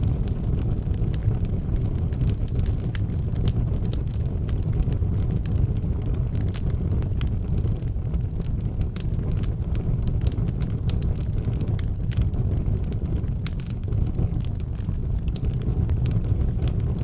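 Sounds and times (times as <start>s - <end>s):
fire crackling and popping: 0.0s - 17.0s
fire rumbling: 0.0s - 17.0s.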